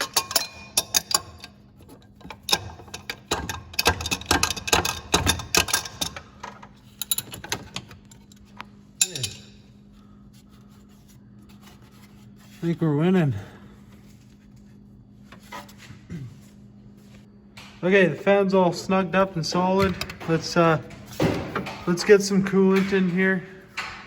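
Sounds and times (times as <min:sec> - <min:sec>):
hand tools clicking on metal: 0:00.0 - 0:08.4, 0:09.0 - 0:09.5
faint steady hum: 0:00.0 - 0:24.0.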